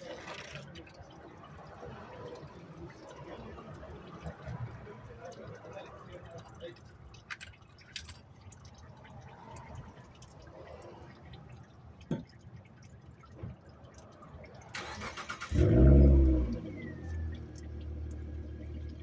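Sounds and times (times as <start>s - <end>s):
car engine cranking and starting: 14.7s - 19.0s
car engine idling: 14.8s - 19.0s.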